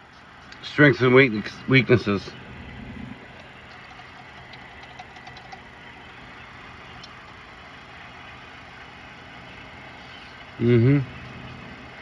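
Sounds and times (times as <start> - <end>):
low hum: 1.4 - 10.4.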